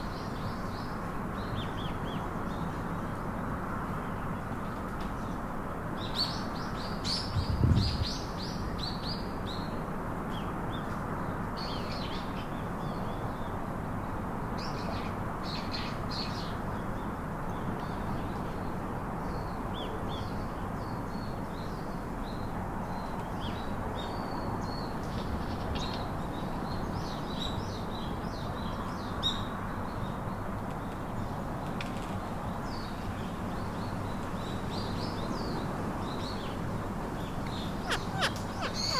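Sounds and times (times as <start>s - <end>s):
steady background noise: 0.0s - 38.9s
parakeets chirping: 36.4s - 38.9s.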